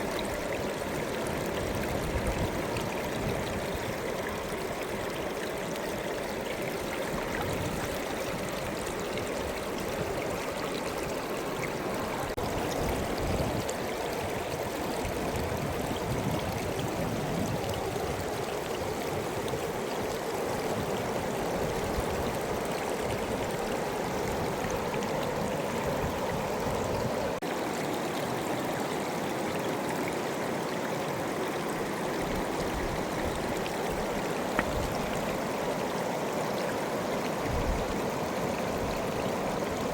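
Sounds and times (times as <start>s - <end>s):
fast river flowing: 0.0s - 39.9s.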